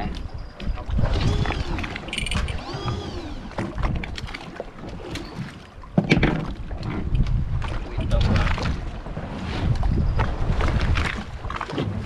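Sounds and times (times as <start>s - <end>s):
rumble of wind and water: 0.0s - 12.0s
knocks on boat: 5.9s - 7.1s.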